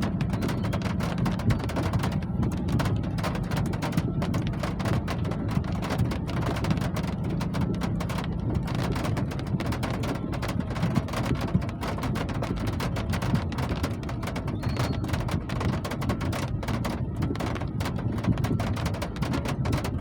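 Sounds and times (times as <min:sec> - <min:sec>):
low rumble: 0:00.0 - 0:20.0
steady rain falling: 0:00.0 - 0:20.0.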